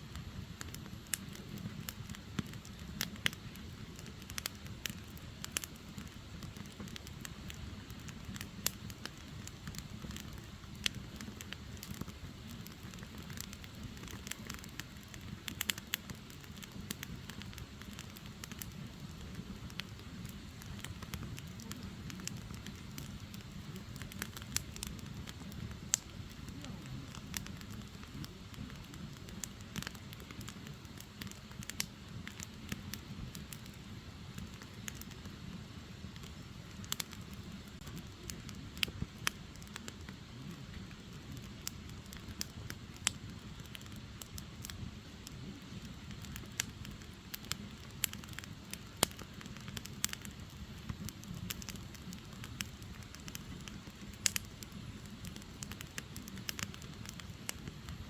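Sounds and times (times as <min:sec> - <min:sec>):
firewood crackling and popping: 0:00.0 - 0:58.0
low rumble of flames: 0:00.0 - 0:58.0.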